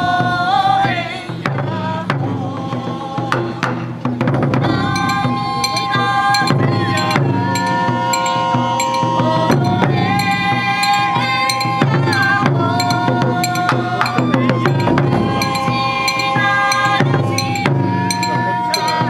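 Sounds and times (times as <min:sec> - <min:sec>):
drum strikes: 0:04.8 - 0:19.0
held melodic notes: 0:04.8 - 0:19.0.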